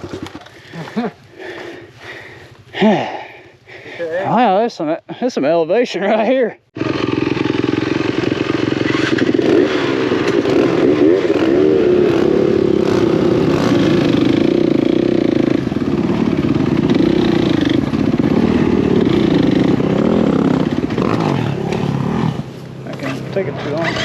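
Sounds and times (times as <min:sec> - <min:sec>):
dirt bike engine revving: 0:06.8 - 0:24.0.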